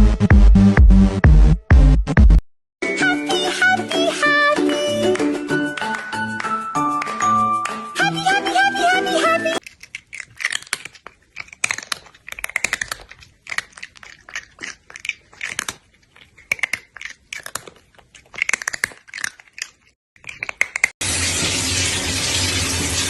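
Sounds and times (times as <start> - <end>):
crunching clicks: 9.6 - 21.0.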